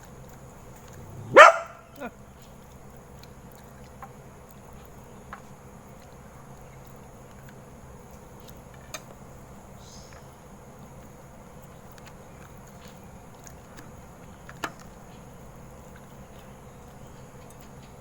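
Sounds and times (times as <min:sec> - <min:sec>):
low room hum: 0:00.0 - 0:11.1.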